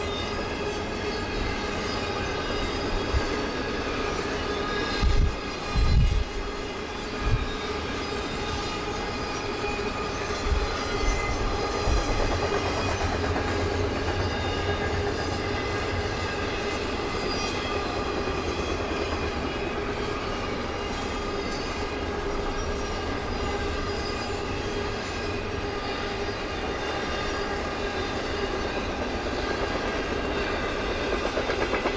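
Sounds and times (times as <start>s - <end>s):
train wheels clattering: 0.0s - 31.9s.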